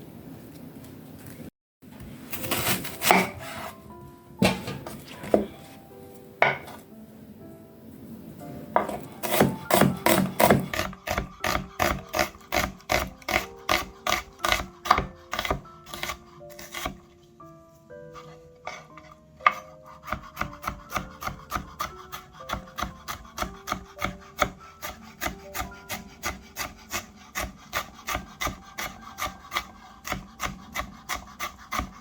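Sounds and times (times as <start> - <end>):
background music: 2.3 - 32.0
knife chopping on wooden board: 2.4 - 3.5, 4.4 - 5.6, 8.8 - 17.0, 18.7 - 32.0.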